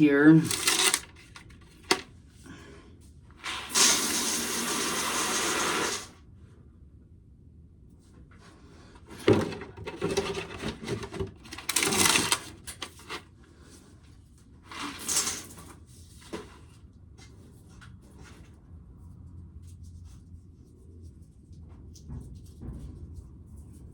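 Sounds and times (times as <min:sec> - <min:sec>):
tin can and corn clattering: 0:00.4 - 0:02.0.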